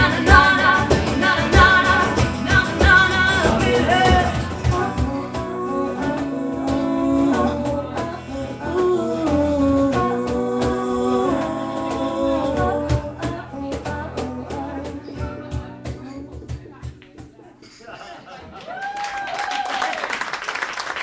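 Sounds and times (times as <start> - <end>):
drum hits: 0.0 - 4.9
long held vocal notes: 0.0 - 15.4
live band playing: 0.0 - 17.3.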